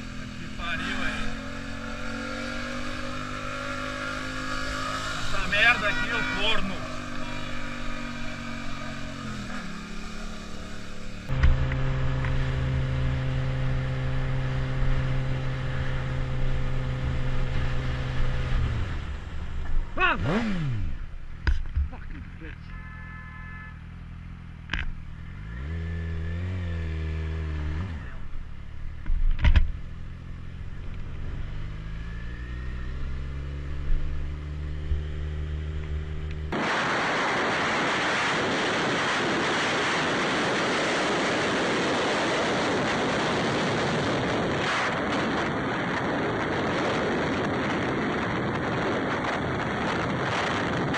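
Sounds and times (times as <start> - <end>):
motorcycle engine running: 0.0 - 36.6
rushing noise: 36.5 - 41.6
wind rush on microphone: 36.5 - 50.9.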